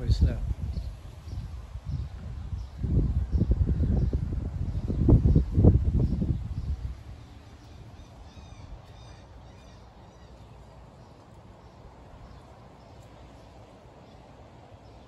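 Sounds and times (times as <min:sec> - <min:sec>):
low steady rumble: 0:00.0 - 0:14.7
bird calling: 0:07.2 - 0:15.0.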